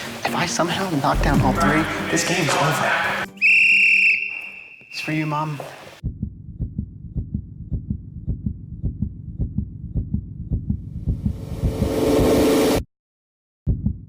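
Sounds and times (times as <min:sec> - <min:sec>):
heartbeat thumps: 0:01.2 - 0:02.5, 0:06.0 - 0:11.9, 0:13.7 - 0:14.0
rising swell: 0:01.2 - 0:03.4.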